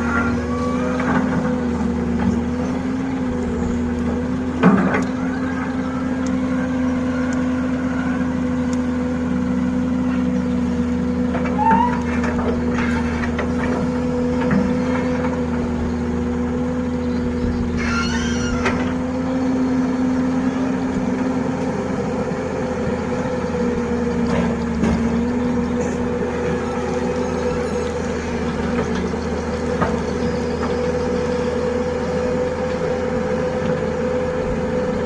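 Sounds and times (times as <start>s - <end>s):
heavy diesel engine running: 0.0s - 35.0s
high squeal: 11.5s - 12.2s, 17.8s - 18.9s.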